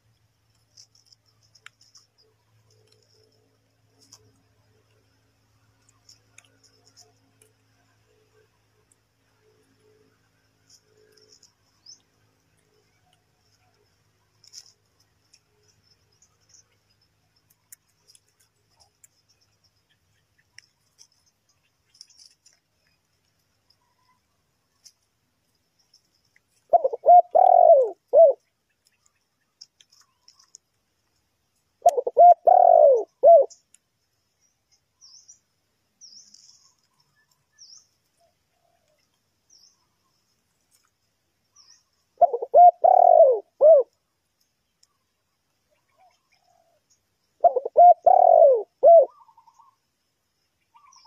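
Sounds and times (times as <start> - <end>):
dove cooing: 26.7 - 28.4, 31.8 - 33.6, 42.2 - 44.0, 47.4 - 49.8.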